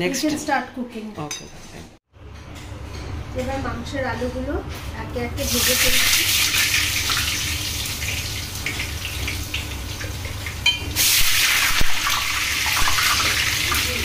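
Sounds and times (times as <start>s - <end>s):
potatoes deep-frying in oil: 5.4s - 14.0s.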